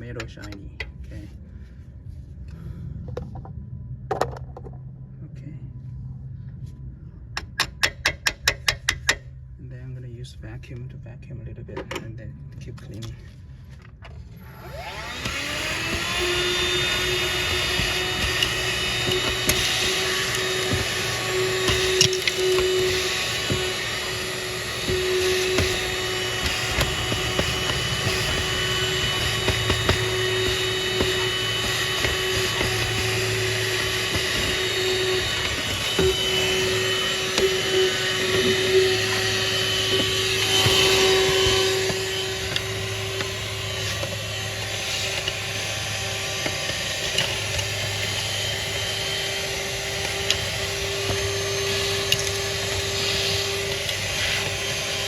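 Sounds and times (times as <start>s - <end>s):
vacuum cleaner running: 14.4s - 55.0s.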